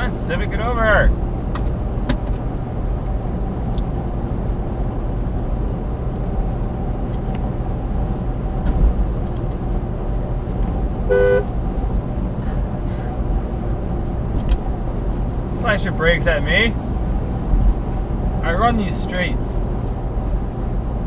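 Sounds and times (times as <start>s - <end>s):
truck engine and road rumble: 0.0s - 21.0s
car horn honk: 11.1s - 11.5s.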